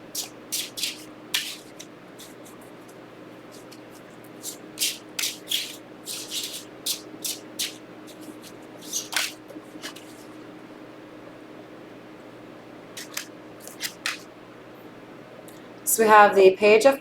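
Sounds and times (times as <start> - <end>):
cards being shuffled: 0.1 - 10.4, 13.0 - 14.3.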